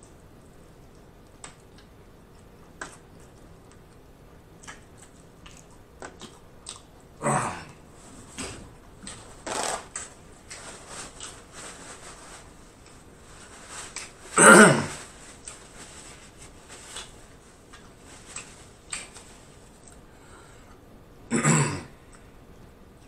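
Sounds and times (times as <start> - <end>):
wet chewing mouth sounds: 4.6 - 7.2.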